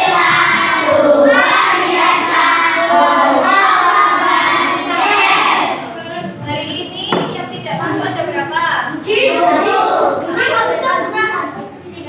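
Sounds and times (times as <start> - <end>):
children chanting in unison: 0.0 - 6.0, 9.2 - 10.4.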